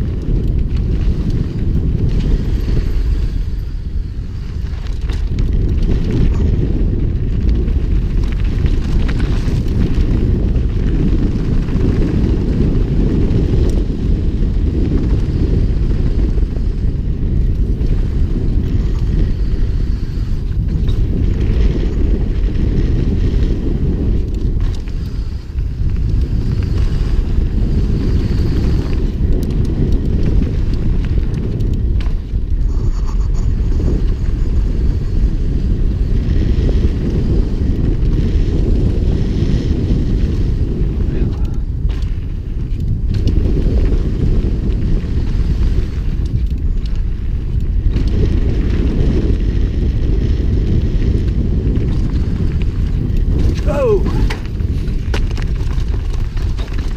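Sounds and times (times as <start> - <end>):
bike trail noise: 0.0 - 56.9
wind buffeting microphone: 0.0 - 56.9.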